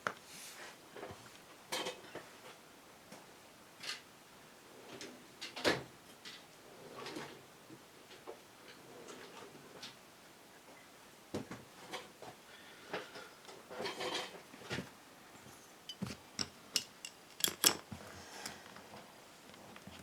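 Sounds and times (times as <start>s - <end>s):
small metal parts clinking: 15.9s - 17.9s.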